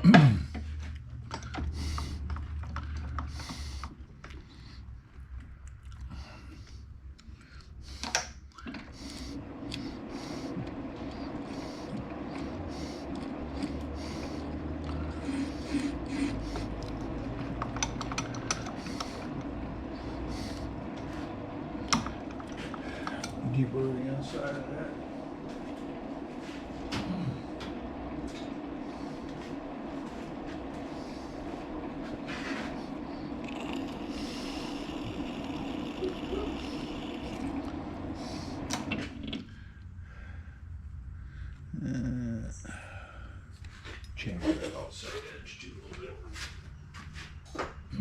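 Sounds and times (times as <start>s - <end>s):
lathe motor hum: 0.0s - 5.4s, 7.7s - 41.7s
cutting hiss: 7.9s - 39.4s.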